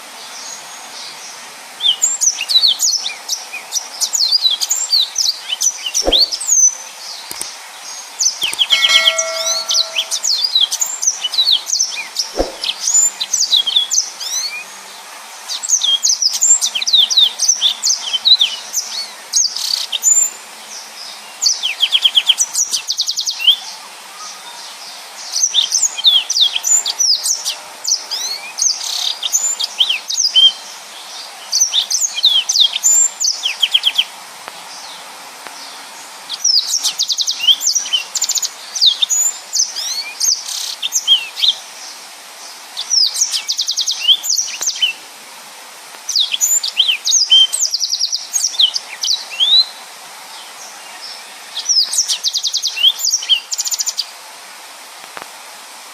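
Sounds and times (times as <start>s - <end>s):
canary singing: 8.5s - 10.5s.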